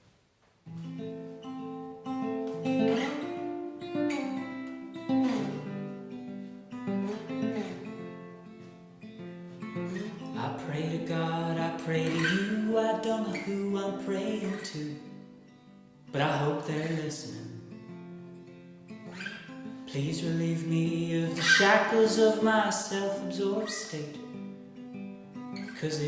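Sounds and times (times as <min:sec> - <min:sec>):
acoustic guitar: 0:00.0 - 0:26.0
person singing: 0:10.3 - 0:15.2, 0:16.2 - 0:17.7, 0:19.9 - 0:24.2.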